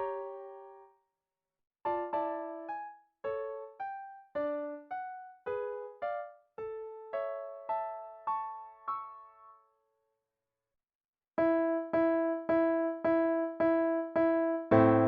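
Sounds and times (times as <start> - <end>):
solo piano music: 0.0 - 0.9, 1.9 - 9.7, 11.4 - 15.0.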